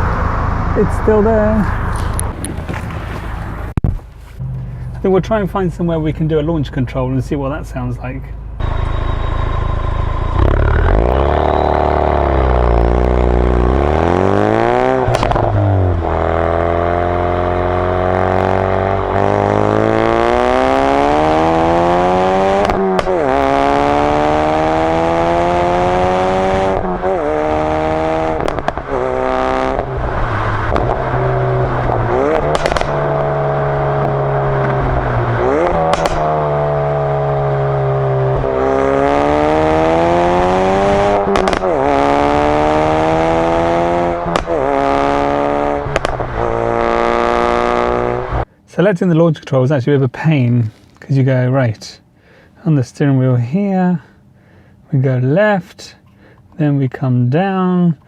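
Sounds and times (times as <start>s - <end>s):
car exhaust accelerating: 0.0s - 48.5s
exhaust crack at gear change: 1.7s - 5.1s, 14.9s - 19.6s, 22.6s - 23.8s, 25.7s - 39.3s, 40.4s - 48.5s.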